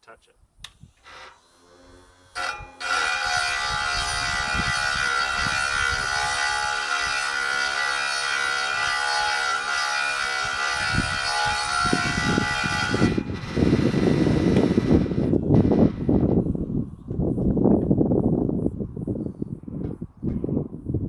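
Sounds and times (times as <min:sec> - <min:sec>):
grinder whining: 0:00.8 - 0:16.4.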